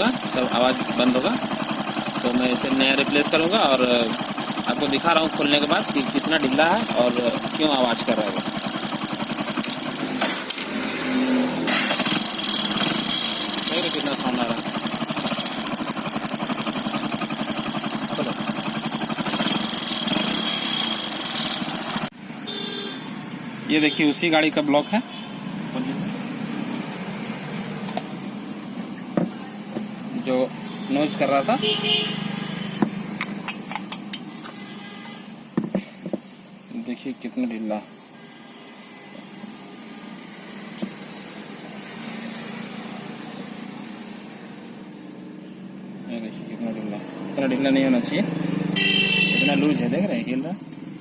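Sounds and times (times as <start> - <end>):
motorcycle engine with piston knock: 0.0 - 10.8, 11.7 - 22.2, 29.1 - 29.9, 32.8 - 34.3.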